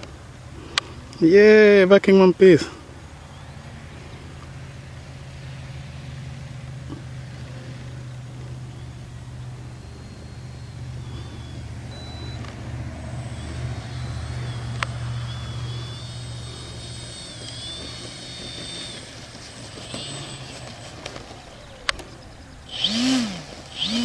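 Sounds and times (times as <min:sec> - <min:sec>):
faint high whine: 0:00.0 - 0:24.0
low engine hum: 0:00.0 - 0:24.0
sharp clicks: 0:13.2 - 0:24.0.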